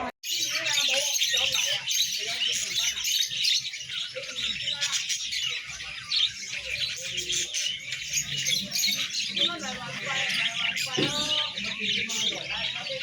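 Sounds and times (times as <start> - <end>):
songbirds chirping and twittering: 0.0 - 13.0.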